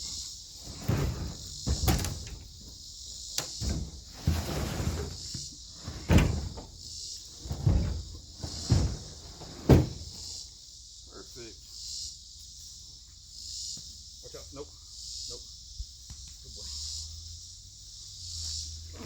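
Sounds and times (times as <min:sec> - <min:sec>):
crickets chirping: 0:00.0 - 0:19.0
logs thumping and knocking: 0:00.6 - 0:02.8, 0:03.4 - 0:10.3.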